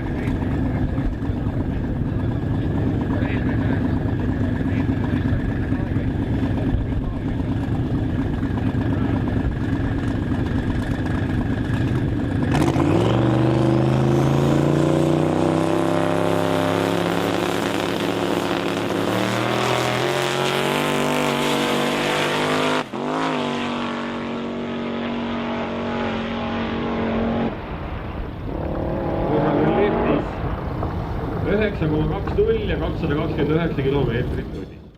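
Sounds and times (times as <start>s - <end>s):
car engine accelerating: 0.0s - 34.5s.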